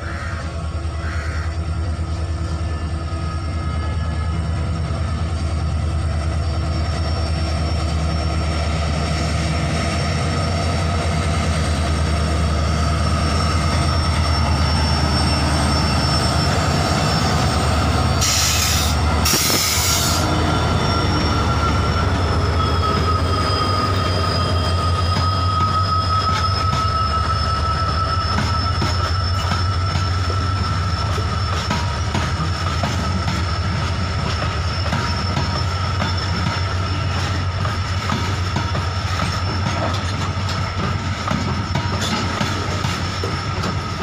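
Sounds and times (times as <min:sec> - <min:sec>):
locomotive engine drone: 0:00.0 - 0:44.0
high thin wheel squeal: 0:02.7 - 0:44.0.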